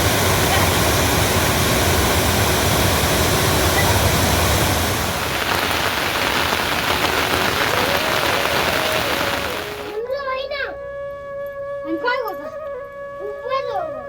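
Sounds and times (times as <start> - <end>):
heavy rain falling: 0.0 - 10.0.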